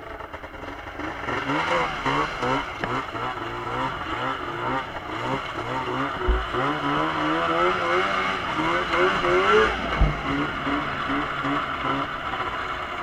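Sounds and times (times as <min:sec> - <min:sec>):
snowmobile engine revving: 0:00.0 - 0:13.0
low thump: 0:06.2 - 0:07.0, 0:09.0 - 0:11.4.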